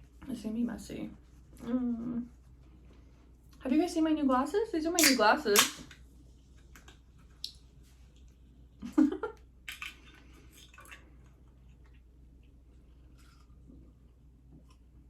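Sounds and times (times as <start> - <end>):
person chewing with wet smacks: 9.6 - 15.0.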